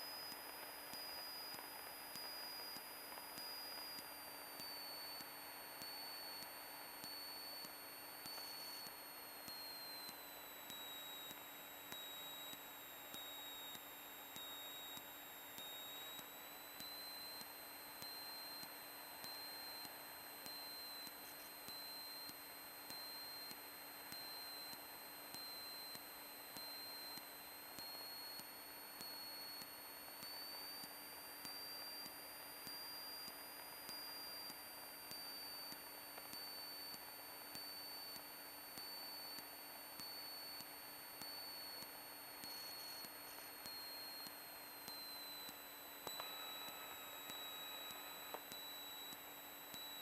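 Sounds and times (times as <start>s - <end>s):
faint electrical hiss: 0.0s - 50.0s
high-pitched electrical whine: 42.6s - 50.0s.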